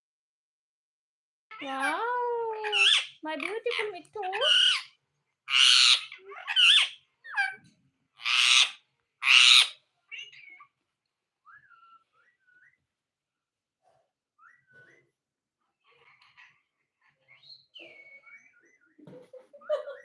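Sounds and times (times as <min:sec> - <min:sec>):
parrot squawking: 0:01.5 - 0:10.7, 0:11.4 - 0:12.8
parrot chirps: 0:02.6 - 0:10.8.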